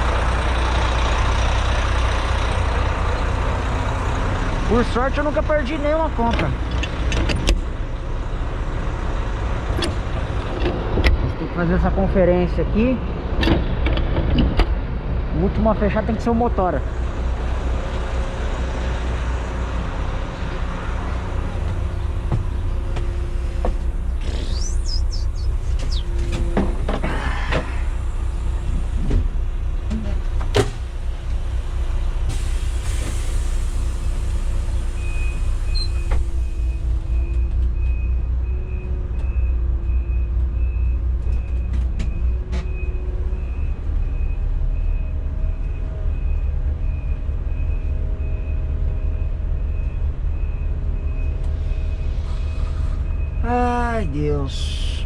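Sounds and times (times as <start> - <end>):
diesel engine idling: 0.0 - 13.8, 14.8 - 41.3, 42.3 - 55.0
electronic beeps: 24.3 - 26.2.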